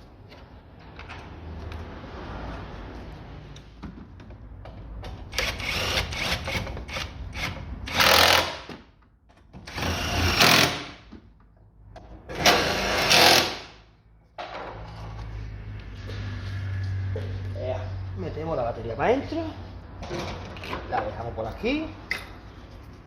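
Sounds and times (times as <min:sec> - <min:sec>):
cordless impact wrench bursts: 0:05.3 - 0:08.7, 0:09.7 - 0:11.0.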